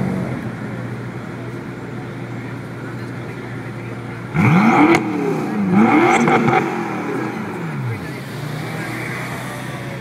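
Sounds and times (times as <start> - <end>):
car engine revving: 2.3 - 10.0
exhaust crack: 4.0 - 9.3.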